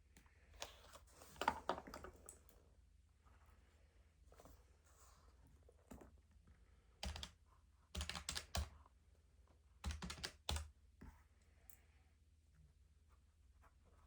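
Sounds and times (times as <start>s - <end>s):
keyboard typing crisp clicks: 7.0s - 7.4s, 8.0s - 8.8s, 9.8s - 10.7s.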